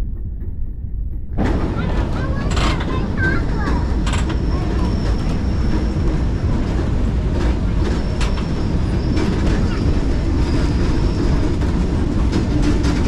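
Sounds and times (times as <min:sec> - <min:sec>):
steam train rumbling on track: 0:00.0 - 0:13.0
wheels clicking on rails: 0:01.1 - 0:13.0
high squeal: 0:08.0 - 0:11.6.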